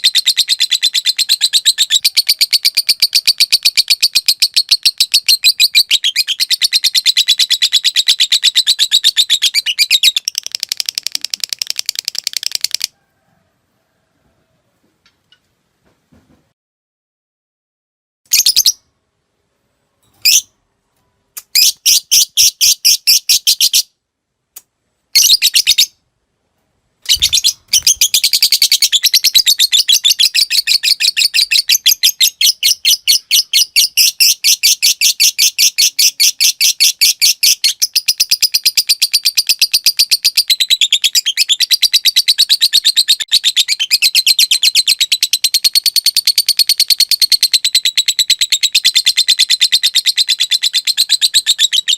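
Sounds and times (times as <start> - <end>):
lovebird chattering trill: 0.0 - 12.9, 27.1 - 51.9
lovebird chirps and clicking notes: 0.0 - 12.9, 20.2 - 20.5, 21.4 - 23.8, 27.0 - 51.9.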